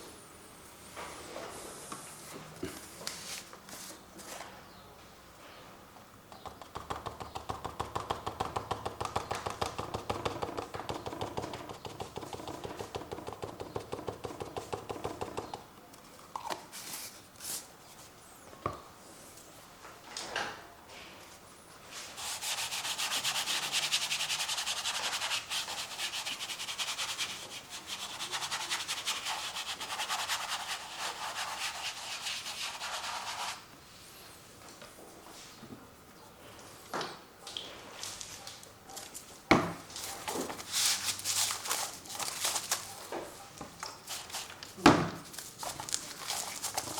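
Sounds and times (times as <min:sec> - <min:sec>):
brush taps: 0:06.4 - 0:15.7
brush scrubbing paint on canvas: 0:21.9 - 0:33.6.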